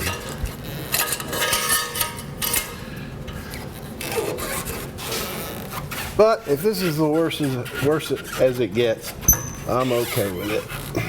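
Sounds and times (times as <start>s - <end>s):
metal parts scraping together: 0.0s - 2.8s.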